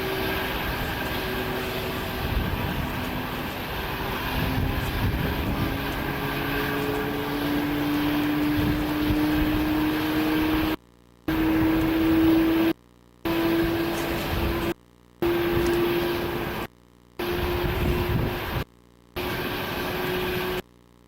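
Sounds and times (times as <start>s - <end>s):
low rumble: 0.0s - 10.7s
jet engines whining: 0.0s - 18.6s, 19.2s - 20.6s.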